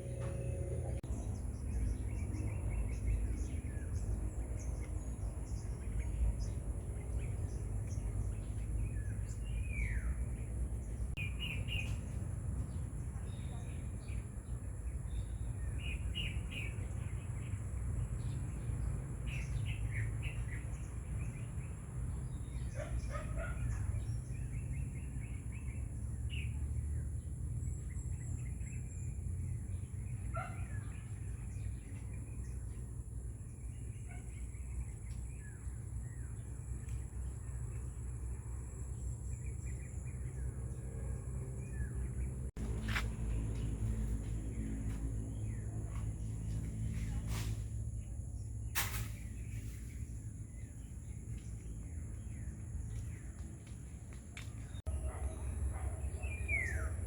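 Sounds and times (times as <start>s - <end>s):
high-pitched whine: 0.0s - 1.2s
steady low rumble: 0.0s - 15.9s, 31.4s - 56.2s
birds chirping: 0.0s - 57.0s.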